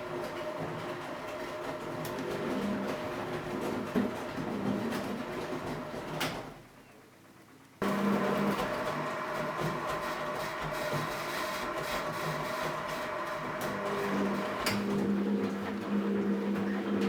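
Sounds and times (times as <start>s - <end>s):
washing machine drum motor running: 7.8s - 17.0s.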